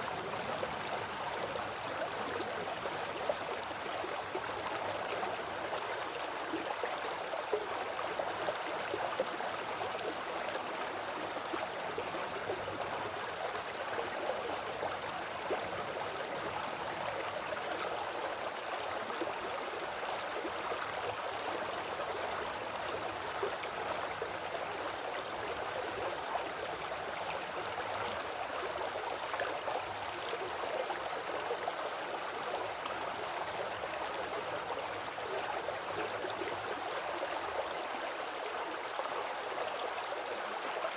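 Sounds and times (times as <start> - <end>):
creek babbling: 0.0 - 40.9.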